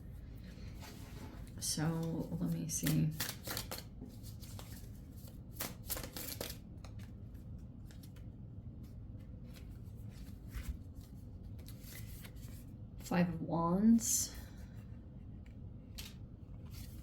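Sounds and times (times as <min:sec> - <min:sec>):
cards being shuffled: 0:01.4 - 0:12.7.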